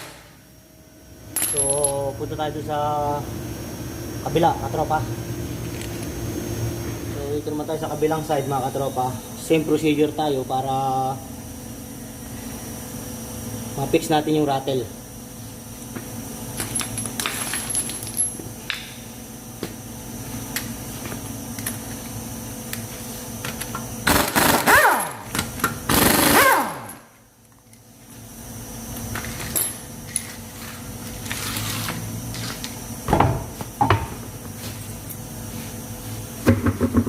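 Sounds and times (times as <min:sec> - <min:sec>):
steady low hum: 0:00.0 - 0:37.0
tools and metal parts clinking: 0:01.4 - 0:02.1, 0:16.6 - 0:18.8, 0:29.2 - 0:31.8
impact wrench bursts: 0:24.0 - 0:27.0.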